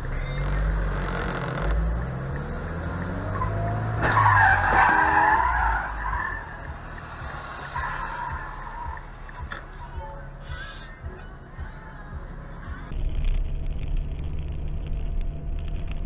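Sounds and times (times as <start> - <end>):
car engine running: 0.0 - 16.0
loud tyre skidding: 0.4 - 9.3.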